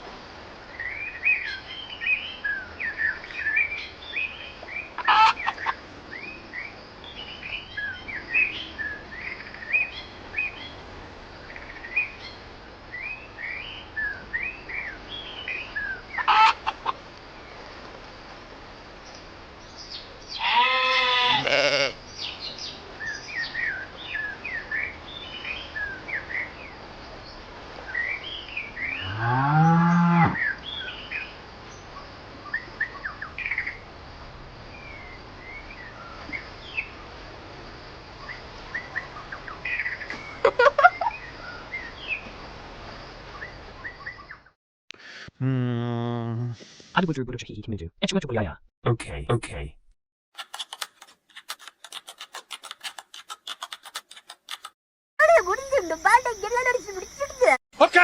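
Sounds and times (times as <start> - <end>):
livestock bleating: 20.4 - 22.0
quick clicks: 50.4 - 54.8
small birds chirping: 55.2 - 57.6.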